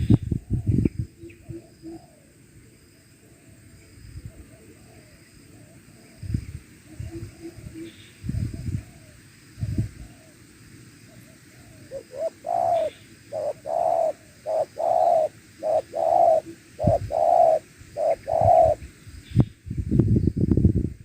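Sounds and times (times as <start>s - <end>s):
dove cooing: 1.4s - 2.3s, 6.9s - 10.4s, 11.1s - 18.8s.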